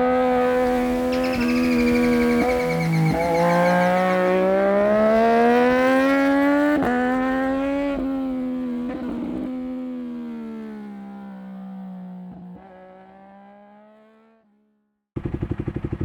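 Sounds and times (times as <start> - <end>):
motorcycle engine pulling hard: 0.0 - 7.6, 15.2 - 16.0.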